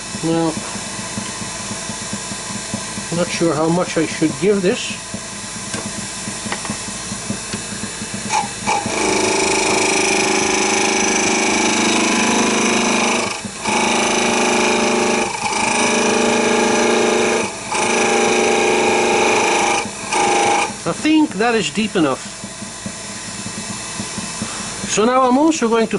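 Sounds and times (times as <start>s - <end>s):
wood lathe running: 0.0s - 25.8s
turning tool cutting wood: 6.4s - 25.0s.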